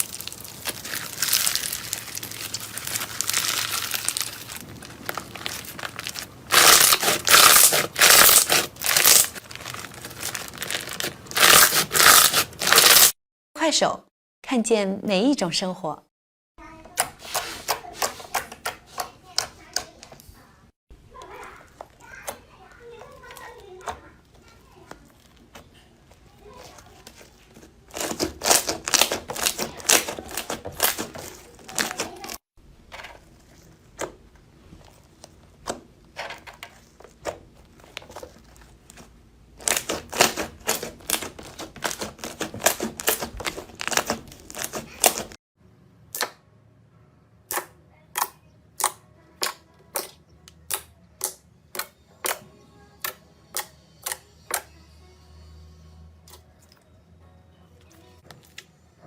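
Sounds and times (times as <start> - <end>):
slime crackling and popping: 0.0 - 13.2, 26.5 - 32.4, 37.8 - 45.3.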